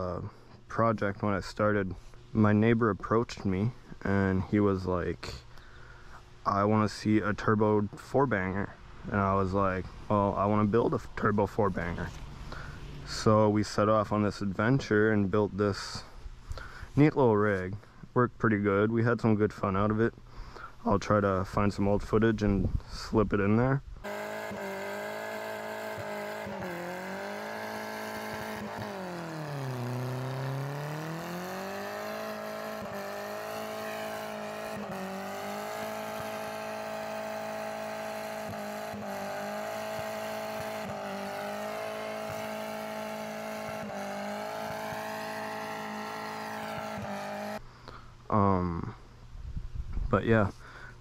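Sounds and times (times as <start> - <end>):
car engine revving high: 24.0 - 47.6.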